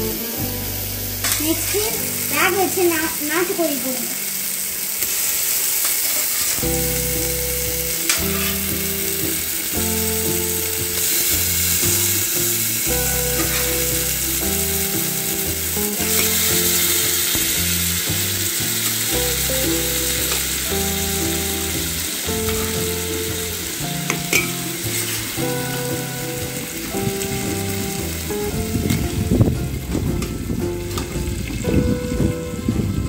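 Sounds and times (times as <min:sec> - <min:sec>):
food sizzling in a pot: 0:00.0 - 0:33.0
background tune of low notes: 0:06.6 - 0:33.0.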